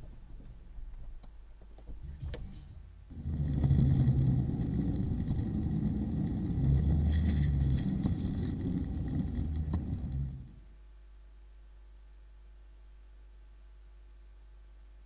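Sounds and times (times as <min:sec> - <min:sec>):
car engine and road rumble: 0:03.1 - 0:10.6.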